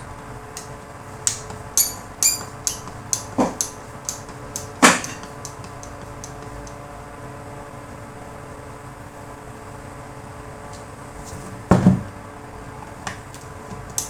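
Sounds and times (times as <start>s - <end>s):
metallic clicks and knocks: 0.6s - 6.8s.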